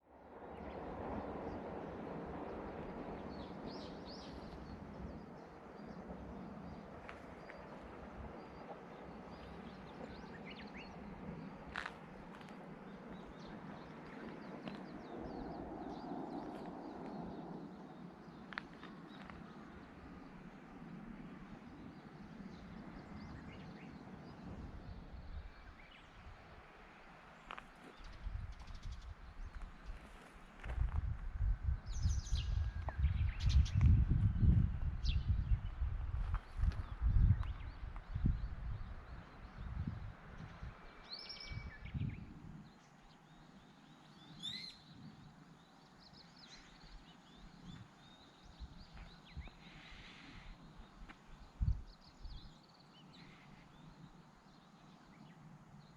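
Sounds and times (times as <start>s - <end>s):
small birds chirping: 36.4s - 55.9s.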